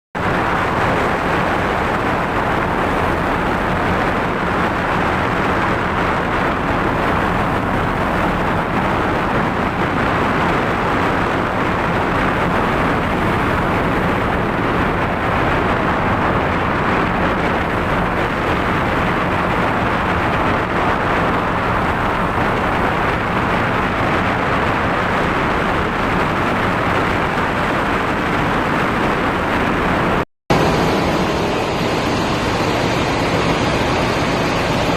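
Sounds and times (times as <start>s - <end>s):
boat engine droning: 0.2s - 34.9s
rush of noise: 0.2s - 34.9s.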